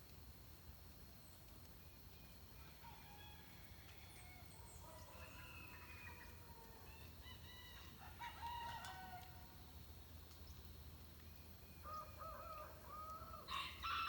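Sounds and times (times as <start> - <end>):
roosters crowing: 11.9 - 14.0.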